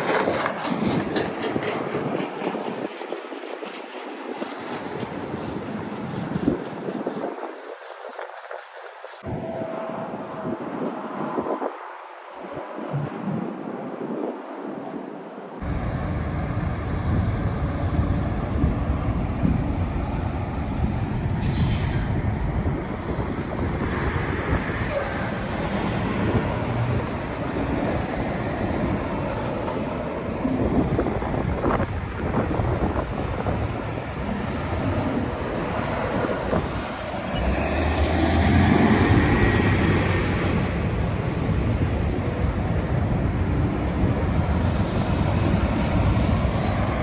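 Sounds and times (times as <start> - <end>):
trucks on highway: 0.0 - 47.0
short air hiss: 21.4 - 22.2.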